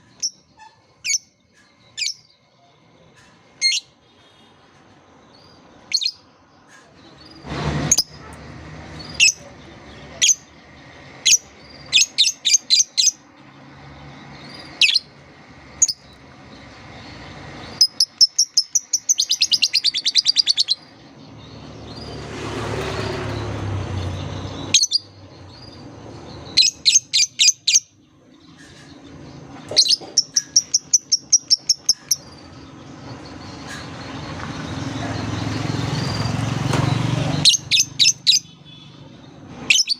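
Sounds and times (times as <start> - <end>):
lovebird chirping and chattering: 0.0 - 2.4, 3.6 - 3.9, 5.4 - 6.3, 8.9 - 10.5, 11.2 - 13.3, 14.2 - 22.2, 23.4 - 36.4, 37.4 - 38.8, 39.6 - 39.9.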